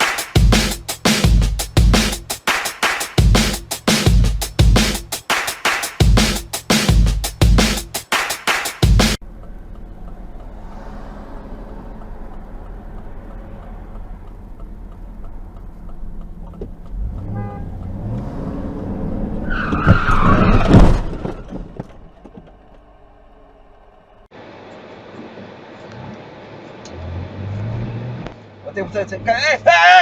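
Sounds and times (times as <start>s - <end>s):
car road and engine noise: 9.2s - 30.0s
car crash impacts: 19.3s - 22.8s
tyres screeching: 19.3s - 23.6s.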